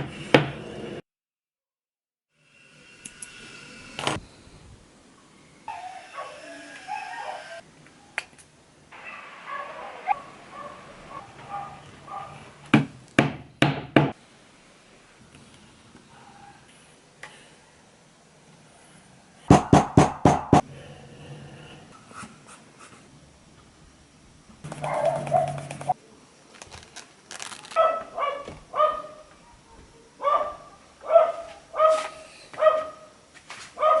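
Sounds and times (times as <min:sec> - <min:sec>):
dog barking: 0:06.1 - 0:07.4, 0:09.0 - 0:12.4, 0:16.1 - 0:16.7, 0:24.8 - 0:25.6, 0:27.8 - 0:33.1, 0:33.8 - 0:34.0.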